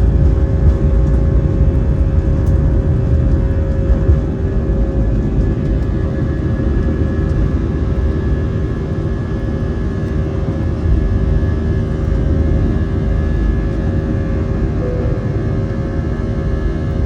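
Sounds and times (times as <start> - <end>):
jet engines rumbling in cabin: 0.0 - 17.0.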